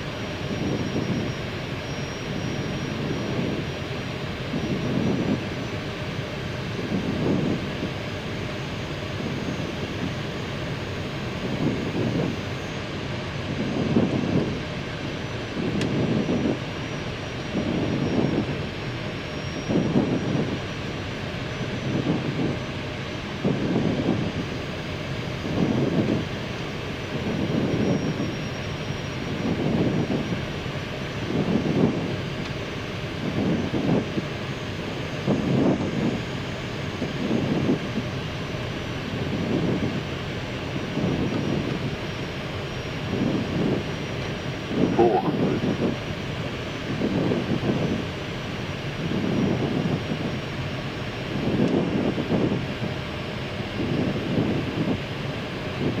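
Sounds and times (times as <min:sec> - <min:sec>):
faint high whine: 0:00.0 - 0:13.0, 0:44.1 - 0:46.0
airflow rush and engine hum: 0:00.0 - 0:56.0.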